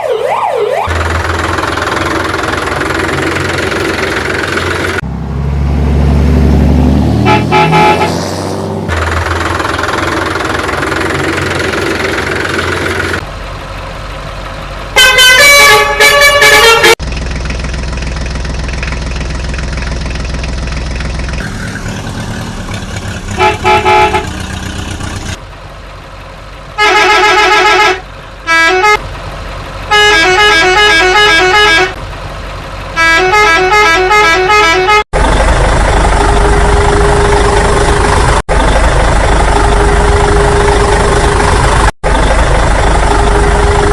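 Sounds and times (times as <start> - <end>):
heavy vehicle engine running: 0.8 - 43.9
vehicle horn honking: 7.2 - 8.2, 15.0 - 17.0, 23.3 - 24.6, 26.8 - 29.0, 29.9 - 32.0, 33.0 - 35.1.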